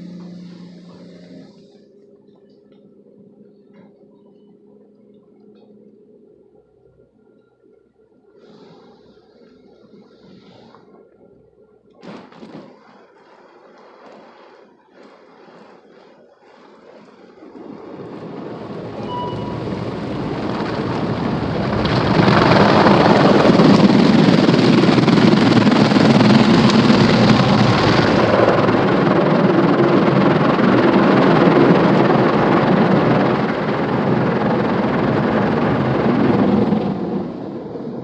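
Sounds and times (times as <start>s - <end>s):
car wash spray rushing: 18.8s - 38.0s.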